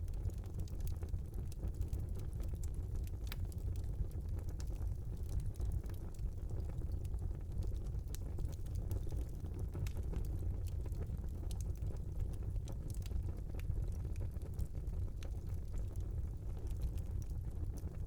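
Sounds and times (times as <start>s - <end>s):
fire crackling and popping: 0.0s - 18.0s
fire flames rumbling: 0.0s - 18.0s.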